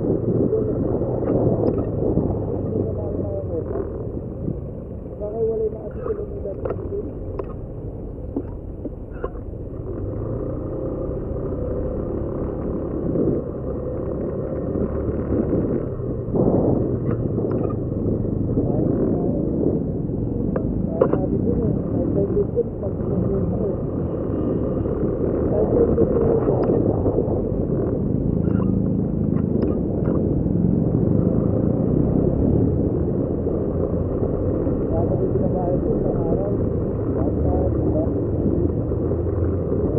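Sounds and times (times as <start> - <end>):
motorcycle engine running: 0.0 - 39.9
rush of noise: 0.0 - 39.9
wind rumble on microphone: 0.0 - 39.9.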